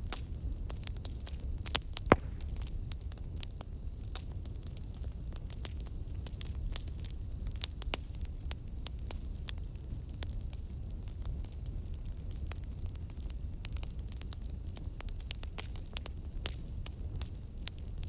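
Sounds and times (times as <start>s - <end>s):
low rumble of flame: 0.0s - 18.0s
wood fire crackling and popping: 0.0s - 18.0s.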